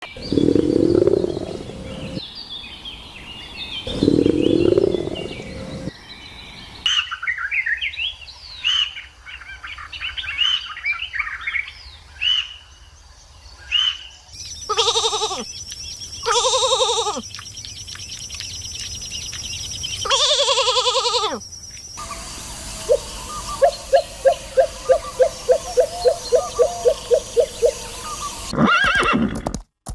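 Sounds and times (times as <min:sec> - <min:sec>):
bird chirping rapidly: 0:00.0 - 0:02.2, 0:03.7 - 0:06.0, 0:14.4 - 0:28.5
wavering bleats: 0:00.2 - 0:02.2, 0:03.9 - 0:05.9, 0:14.7 - 0:15.4.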